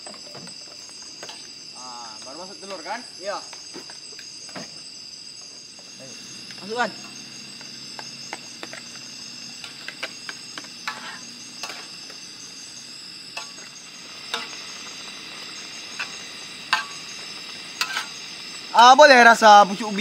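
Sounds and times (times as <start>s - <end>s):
food sizzling in a frying pan: 0.0s - 20.0s
spatula scraping a pan: 9.6s - 12.0s, 15.9s - 17.0s, 17.7s - 18.2s.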